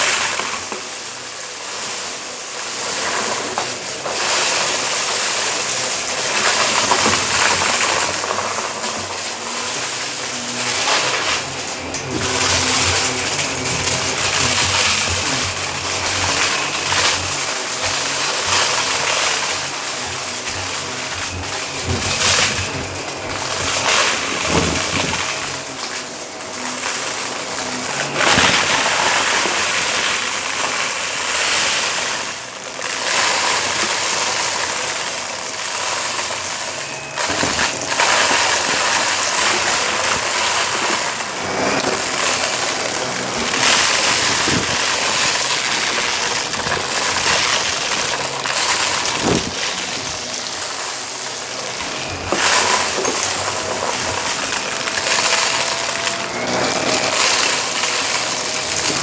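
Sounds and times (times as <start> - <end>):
grit crackling in vacuum: 0.0 - 59.0
vacuum cleaner on carpet: 0.0 - 59.0.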